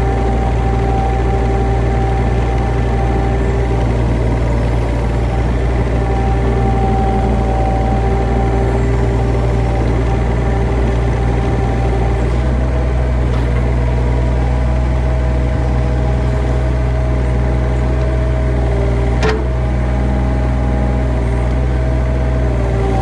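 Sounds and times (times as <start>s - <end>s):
engine idling: 0.0s - 23.0s.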